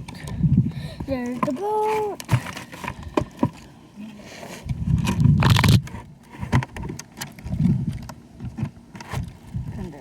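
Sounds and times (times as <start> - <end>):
toy packaging scraping: 4.4 - 6.6.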